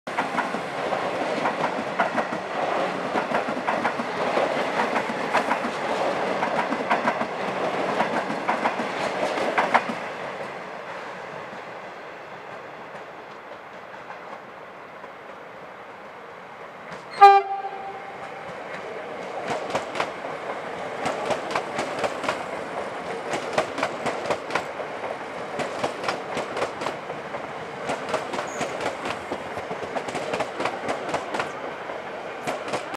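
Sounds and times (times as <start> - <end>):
train wheels clicking over rail joints: 0.1 - 10.1, 12.5 - 15.4, 18.2 - 32.9
electric train rolling past: 0.1 - 32.9
train horn toot: 17.1 - 18.3.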